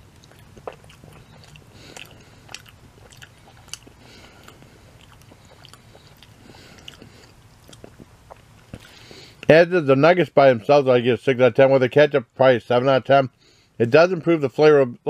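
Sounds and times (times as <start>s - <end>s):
person chewing food: 0.0s - 9.5s.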